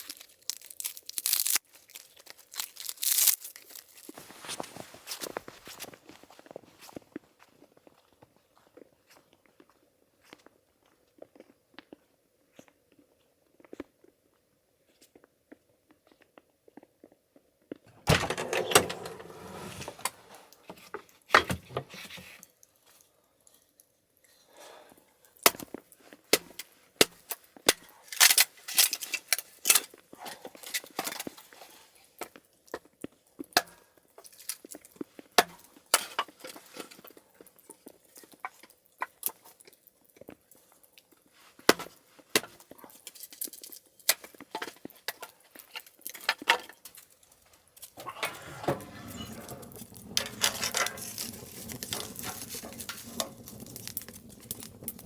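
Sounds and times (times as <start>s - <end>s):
firewood snapping and cracking: 0.0s - 4.2s, 49.1s - 55.0s.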